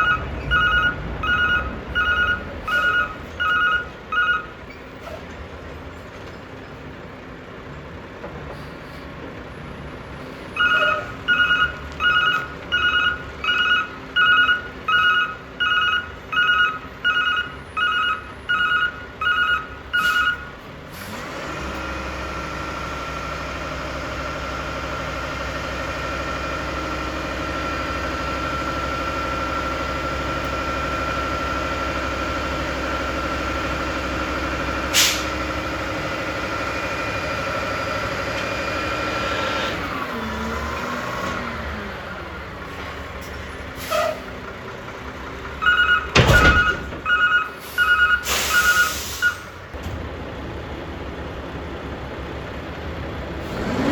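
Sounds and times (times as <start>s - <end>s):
truck reversing alarm beeping: 0.0s - 5.2s, 10.4s - 49.7s
heavy truck engine running: 0.0s - 53.9s.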